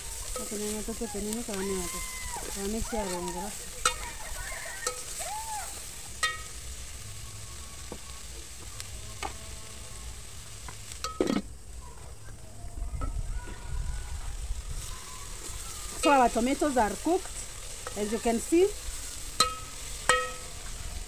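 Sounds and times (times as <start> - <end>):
fish frying sizzle: 0.0 - 11.9, 13.3 - 21.0
metal spoon clinking pot: 4.8 - 5.1, 6.2 - 6.5, 19.4 - 20.4.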